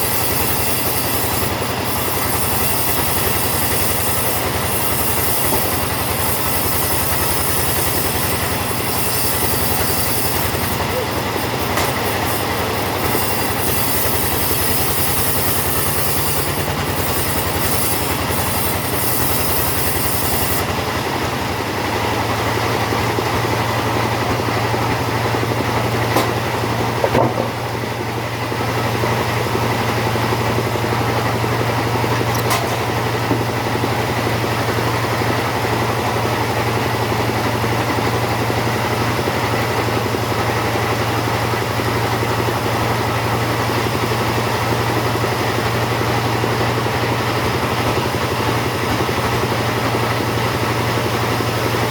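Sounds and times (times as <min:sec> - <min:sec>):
chainsaw cutting wood: 0:00.0 - 0:51.9
chainsaw idling: 0:00.0 - 0:51.9
sharp knocks: 0:27.0 - 0:27.7.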